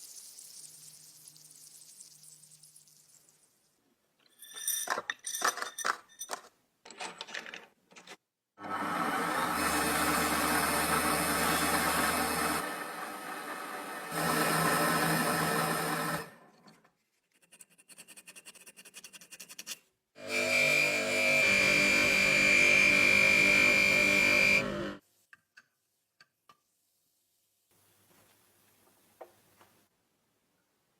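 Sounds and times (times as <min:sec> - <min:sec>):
small power tool running: 0:08.6 - 0:16.3, 0:20.2 - 0:25.0.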